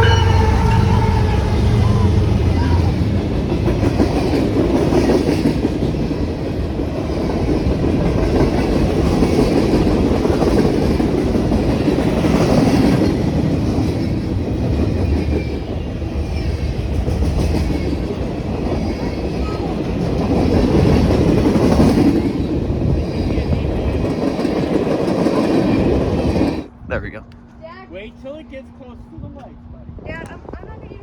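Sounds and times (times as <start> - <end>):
locomotive engine drone: 0.0 - 4.8
freight cars rumbling: 0.0 - 27.3.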